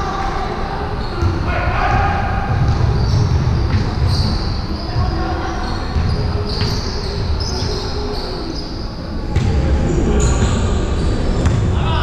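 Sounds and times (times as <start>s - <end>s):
shoe squeaks: 0.9s - 9.2s
basketball bouncing: 1.2s - 5.2s, 5.9s - 7.8s.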